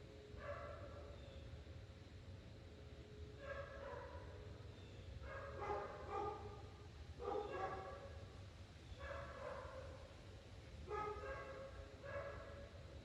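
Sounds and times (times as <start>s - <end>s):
distant dog barking: 0.4s - 1.0s, 3.4s - 4.4s, 5.2s - 6.6s, 7.2s - 8.2s, 9.0s - 10.1s, 10.9s - 12.7s.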